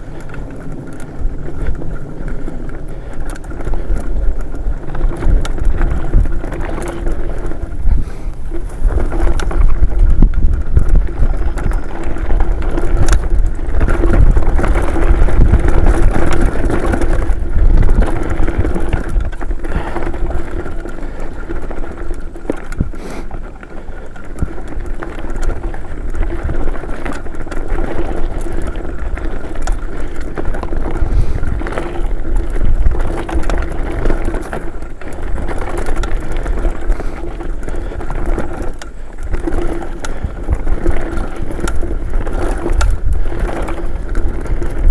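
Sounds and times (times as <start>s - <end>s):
bike knocks and rattles: 0.0s - 44.9s
knobby tyres rolling on dirt: 0.0s - 44.9s
wind buffeting microphone: 0.0s - 44.9s.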